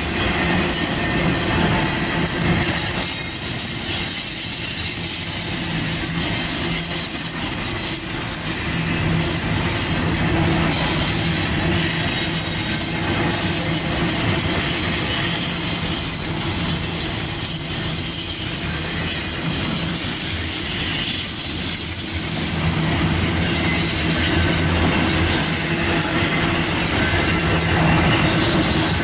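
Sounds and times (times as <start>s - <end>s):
steel wheels rumbling on rail: 0.0s - 29.0s
high-pitched wheel squeal: 0.8s - 10.1s, 10.7s - 22.1s.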